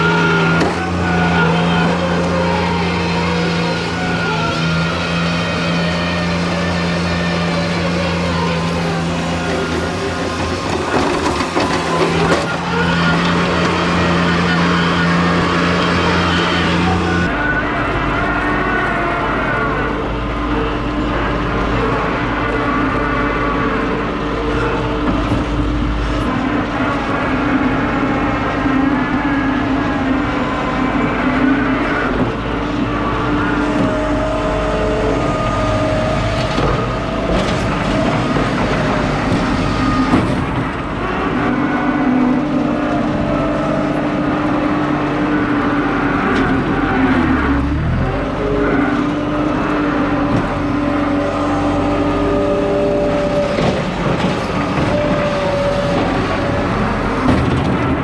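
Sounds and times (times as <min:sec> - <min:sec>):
loader engine running: 0:00.0 - 0:58.0.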